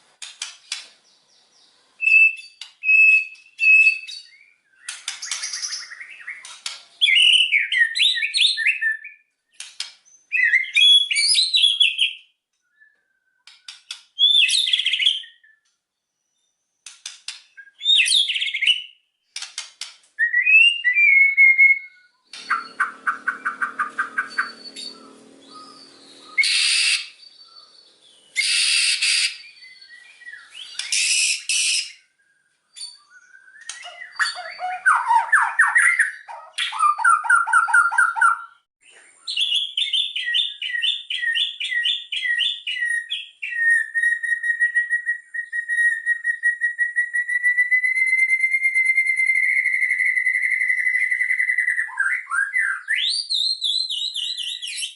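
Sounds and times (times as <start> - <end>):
bird singing whistled phrases: 2.0 - 9.3, 10.2 - 16.6, 20.2 - 38.6, 39.2 - 54.9
harsh raspy bird calls: 22.3 - 29.5, 33.7 - 38.6.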